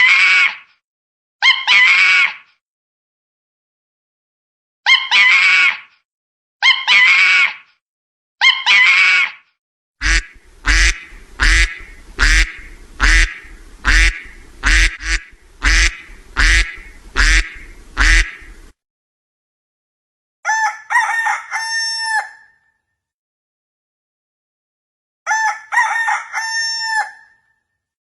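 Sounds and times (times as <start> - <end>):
animal calls: 10.0 - 18.7.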